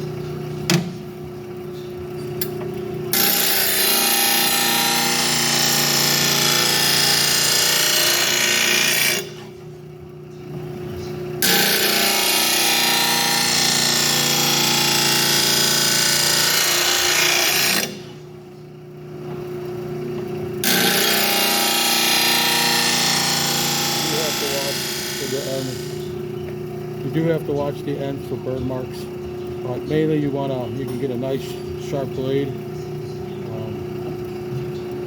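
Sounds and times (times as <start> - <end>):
motor humming: 0.0 - 35.0
grinding wheel grinding metal blade: 3.1 - 9.6, 11.4 - 18.3, 20.6 - 33.6.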